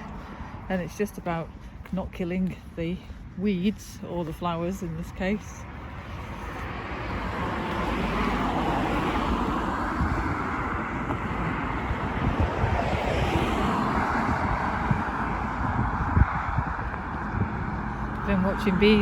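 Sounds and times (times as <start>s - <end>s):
road traffic passing: 0.0s - 19.0s
wind buffeting microphone: 0.0s - 19.0s.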